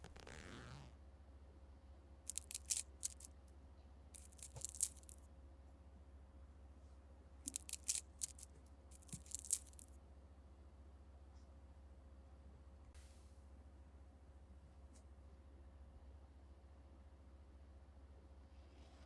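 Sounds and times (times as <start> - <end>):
zipper clicking: 0.0 - 0.9.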